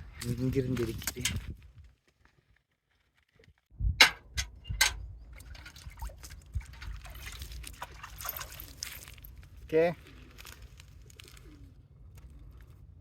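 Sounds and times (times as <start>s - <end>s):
water splashing and trickling: 5.2s - 11.4s.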